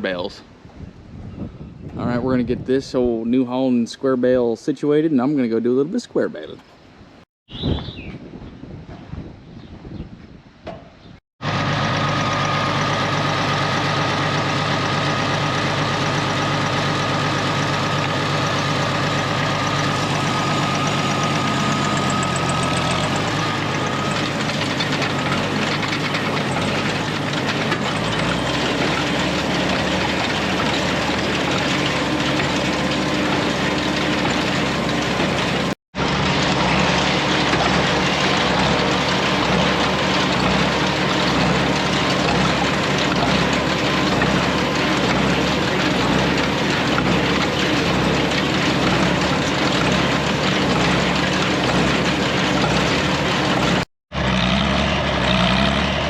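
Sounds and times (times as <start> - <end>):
tractor engine running: 11.4 - 56.0.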